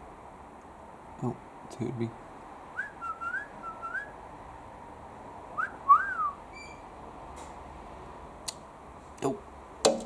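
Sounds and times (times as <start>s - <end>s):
person whistling: 2.8s - 4.1s, 5.6s - 6.4s
faint chirp: 6.1s - 6.9s.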